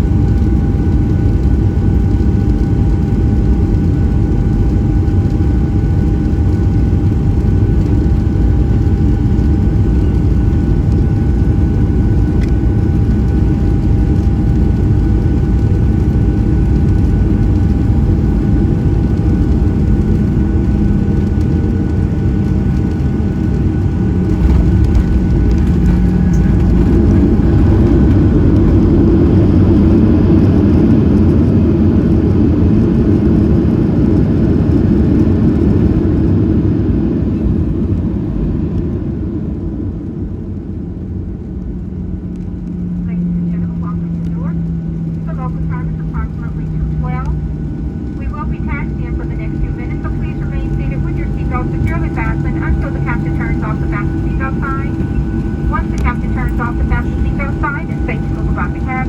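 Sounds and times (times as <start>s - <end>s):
aircraft cabin engine and air noise: 0.0s - 59.0s
thin steady whine tones: 42.3s - 59.0s.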